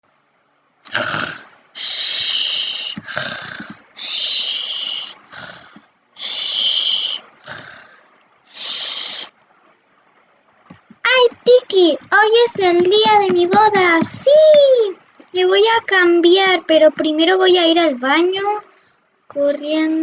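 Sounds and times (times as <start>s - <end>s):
snoring: 0.9s - 5.8s.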